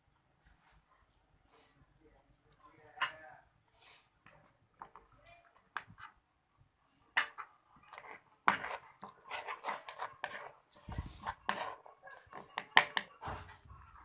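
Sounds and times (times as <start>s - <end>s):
slime being stirred: 7.0s - 14.0s
stirrer scraping container: 7.2s - 14.0s.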